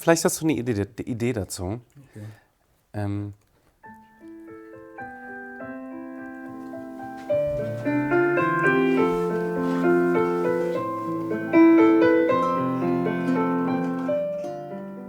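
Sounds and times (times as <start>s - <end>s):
slow gentle piano chords: 3.8s - 15.0s.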